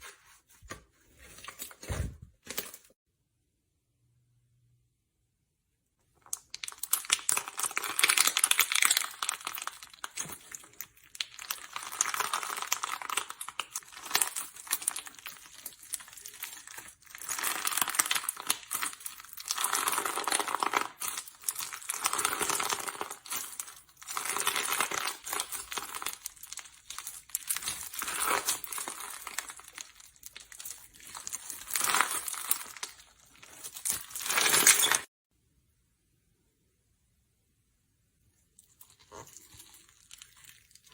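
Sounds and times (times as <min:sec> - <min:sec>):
slime crackling and popping: 0:06.3 - 0:35.1.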